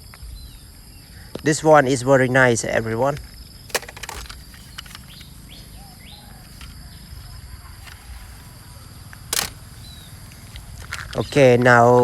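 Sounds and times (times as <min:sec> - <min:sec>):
faint bird chirps: 0:04.5 - 0:12.0.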